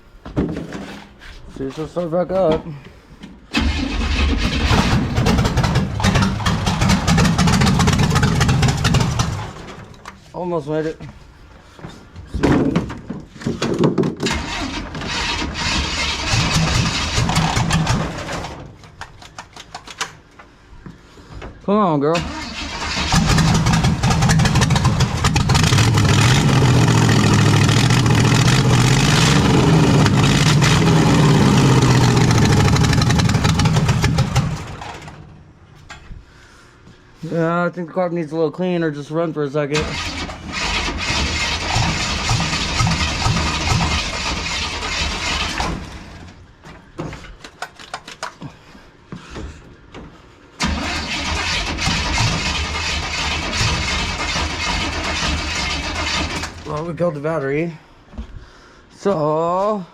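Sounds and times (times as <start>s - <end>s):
engine running roughly and stalling: 3.6s - 9.8s, 14.2s - 18.6s, 22.2s - 35.2s, 39.8s - 46.3s, 50.6s - 56.9s.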